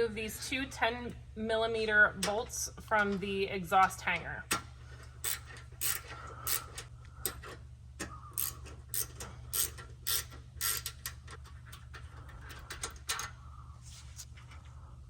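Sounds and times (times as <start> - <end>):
steady low hum: 0.0 - 15.0
ratchet wrench clicking: 5.2 - 7.4, 8.3 - 11.9.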